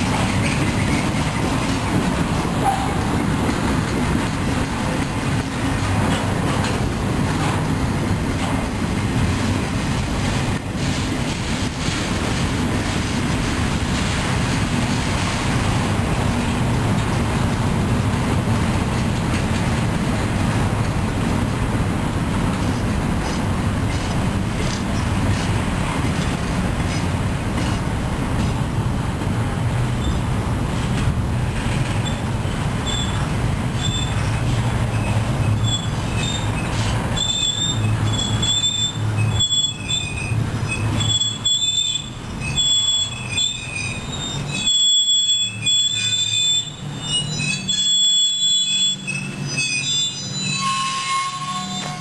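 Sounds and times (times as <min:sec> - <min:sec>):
train wheels rumbling on rails: 0:00.0 - 0:52.0
high-pitched wheel squeal: 0:32.8 - 0:33.2, 0:33.8 - 0:34.3, 0:34.9 - 0:52.0.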